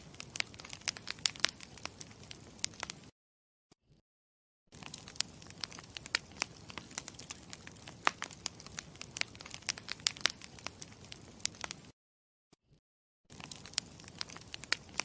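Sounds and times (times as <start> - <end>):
campfire crackling and popping: 0.0 - 3.1, 4.7 - 11.9, 13.3 - 15.0
low steady fire hiss: 0.0 - 3.1, 4.8 - 11.9, 13.3 - 15.0.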